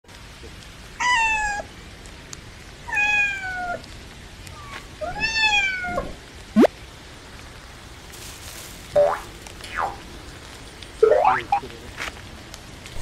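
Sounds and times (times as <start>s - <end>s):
cat meowing: 2.9s - 3.8s, 4.6s - 6.2s.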